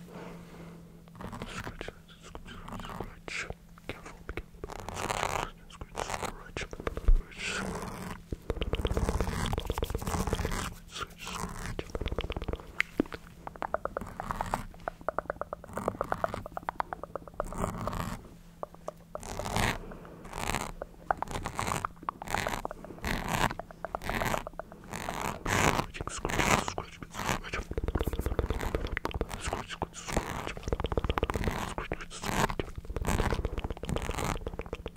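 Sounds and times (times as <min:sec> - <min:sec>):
wet mouth clicking: 0:01.2 - 0:34.9
breathy hissing bursts: 0:18.2 - 0:34.6.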